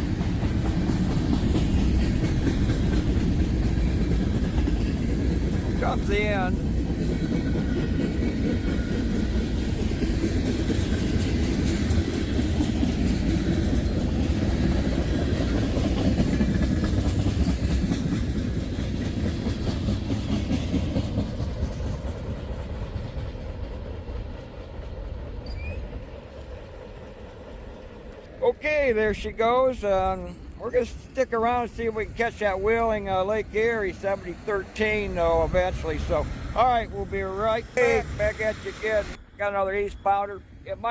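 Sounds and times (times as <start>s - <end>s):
train wheels clicking over rail joints: 0.0s - 39.2s.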